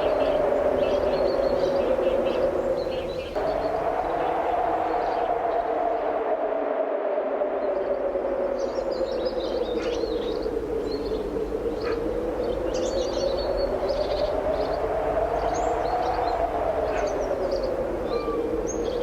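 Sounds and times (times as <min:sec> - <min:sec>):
strong wind blowing: 0:00.0 - 0:19.0
small birds chirping: 0:08.6 - 0:19.0.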